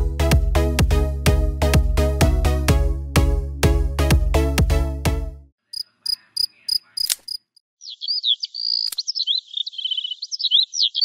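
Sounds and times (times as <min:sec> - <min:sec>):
rapid high-pitched chirping: 0:05.7 - 0:11.0.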